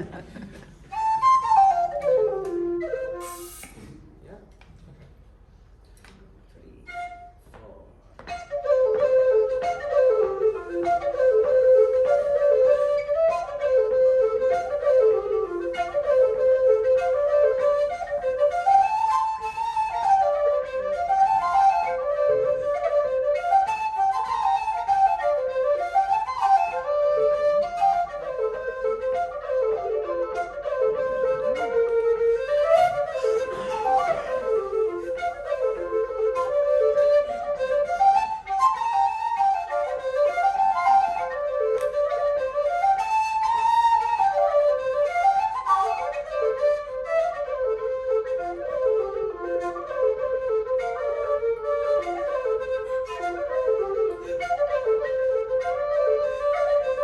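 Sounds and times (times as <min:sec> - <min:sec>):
low whistle melody: 0:00.0 - 0:03.8, 0:06.6 - 0:57.0
folk band playing: 0:25.4 - 0:57.0.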